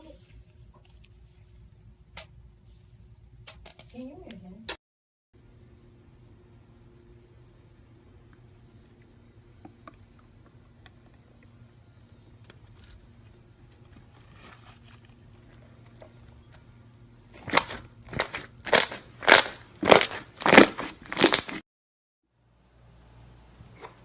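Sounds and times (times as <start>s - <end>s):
loud crunching squeezes: 17.3s - 21.6s
slime squeezed by hand: 17.4s - 21.6s.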